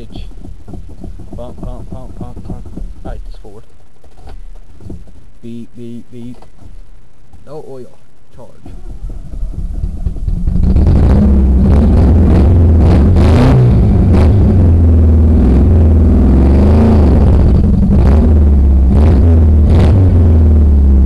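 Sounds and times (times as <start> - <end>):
car engine revving hard: 10.4 - 21.0.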